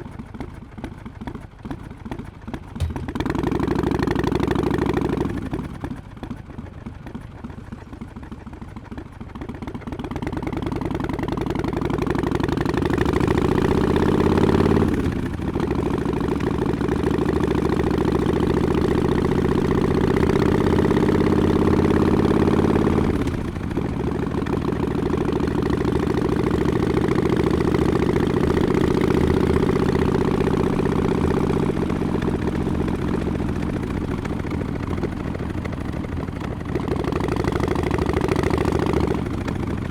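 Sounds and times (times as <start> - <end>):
motorcycle exhaust rumbling: 0.4 - 39.9.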